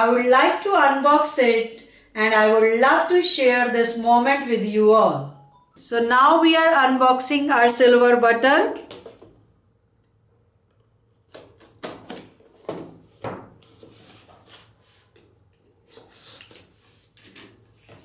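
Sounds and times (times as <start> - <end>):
cardboard scraping and rustling: 12.5 - 15.1.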